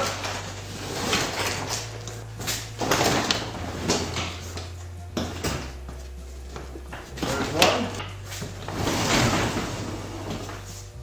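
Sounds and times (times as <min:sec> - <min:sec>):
garage door rollers rattling: 0:00.0 - 0:10.8.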